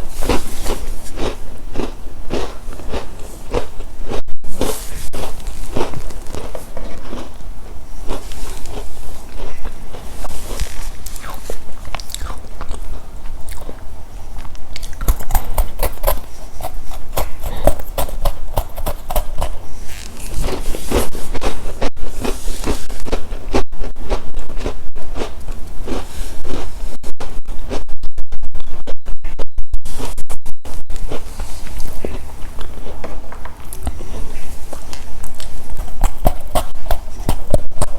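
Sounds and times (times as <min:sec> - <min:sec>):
crunchy chewing of snacks: 0:00.0 - 0:27.0, 0:30.9 - 0:37.9.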